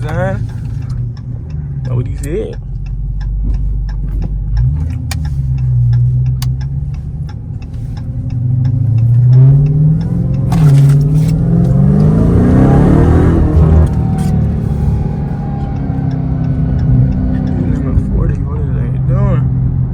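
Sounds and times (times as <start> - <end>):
car engine accelerating hard: 0.0 - 19.9.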